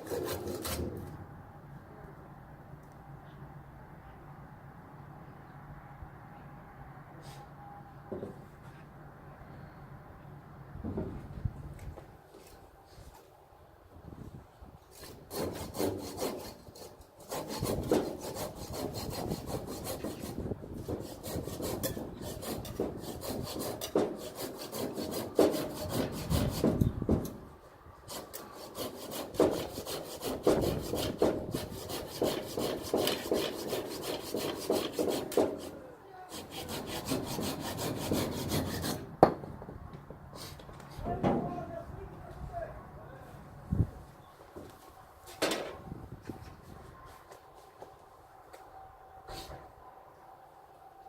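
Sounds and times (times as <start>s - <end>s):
hand saw cutting firewood: 0.0s - 1.2s, 14.9s - 27.4s, 28.1s - 39.1s.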